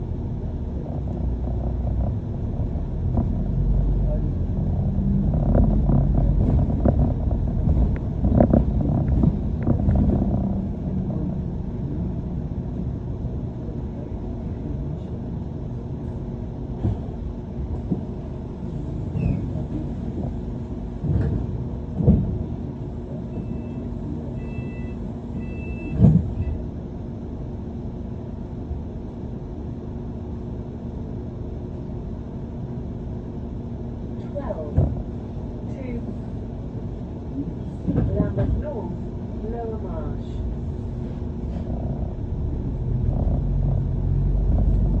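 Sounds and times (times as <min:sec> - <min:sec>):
bus engine rumble: 0:00.0 - 0:45.0
knocks from the ride: 0:21.0 - 0:22.4, 0:25.9 - 0:26.5, 0:34.7 - 0:35.1.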